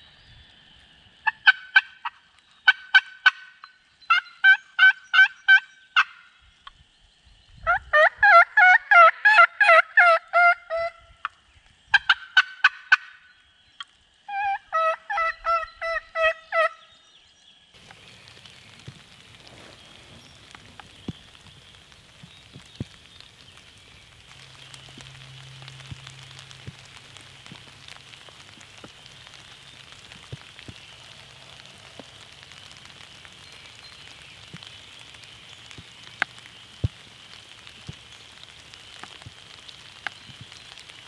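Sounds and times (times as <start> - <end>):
faint rain hiss: 0.0 - 7.7, 11.0 - 14.7, 16.9 - 41.0
turkey call yelps: 1.2 - 6.2, 7.7 - 11.0, 14.3 - 16.8.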